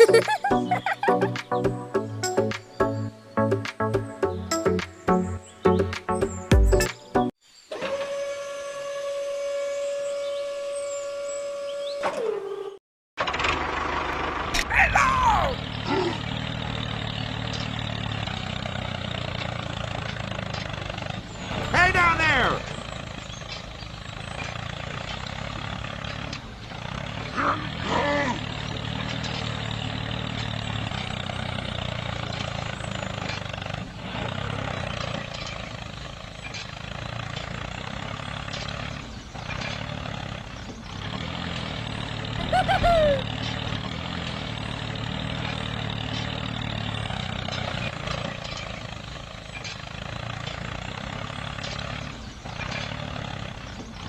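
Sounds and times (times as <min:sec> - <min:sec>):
small engine running: 0:07.7 - 0:54.0
short falling cries: 0:14.6 - 0:16.2, 0:42.4 - 0:43.5.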